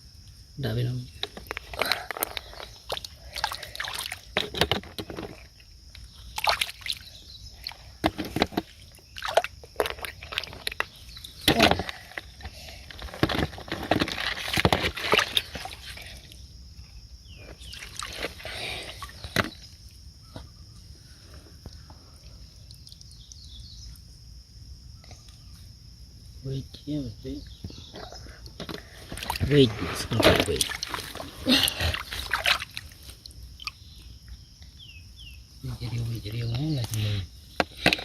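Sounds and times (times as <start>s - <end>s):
shallow water sloshing and splashing: 1.3s - 16.4s, 17.4s - 19.9s, 28.7s - 34.2s.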